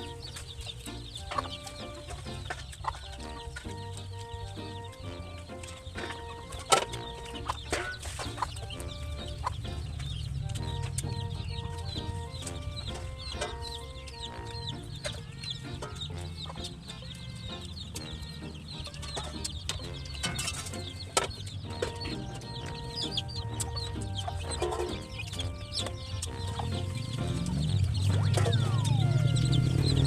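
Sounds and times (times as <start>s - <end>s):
chickens clucking: 0.0s - 30.0s
light background music: 0.0s - 30.0s.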